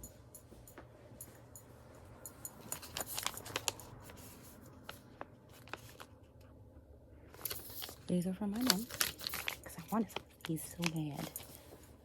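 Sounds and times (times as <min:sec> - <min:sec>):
packaging rustling and clicking: 0:02.6 - 0:04.1, 0:07.4 - 0:11.8.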